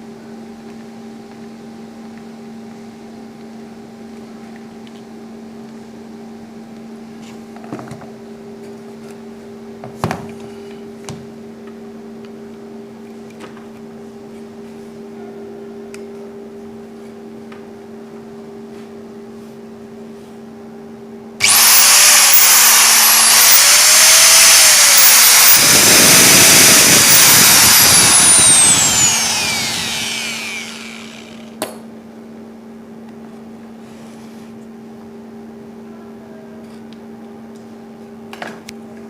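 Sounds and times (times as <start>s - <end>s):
angle grinder whining: 21.4s - 31.6s.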